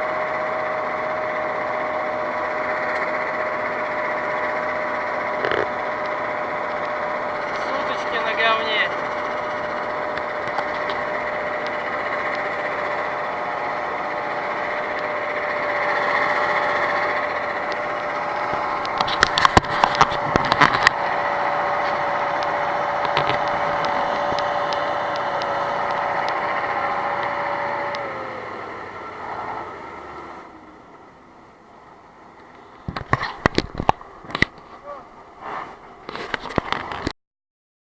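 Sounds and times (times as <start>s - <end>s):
off-road vehicle engine running: 0.0s - 37.1s
engine whine: 0.0s - 37.2s
sharp clicks and knocks: 17.6s - 21.0s, 21.8s - 28.0s, 32.4s - 34.8s.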